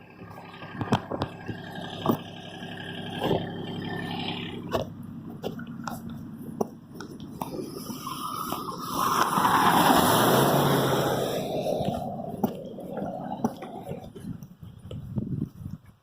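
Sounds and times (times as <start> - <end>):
tractor engine idling: 0.0 - 16.0
sharp clicks and knocks: 0.6 - 2.4.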